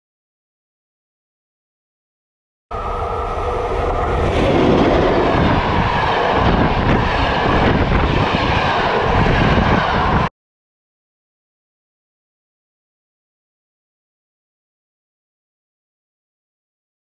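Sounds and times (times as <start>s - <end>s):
train wheels rumbling on rail: 2.7s - 10.3s.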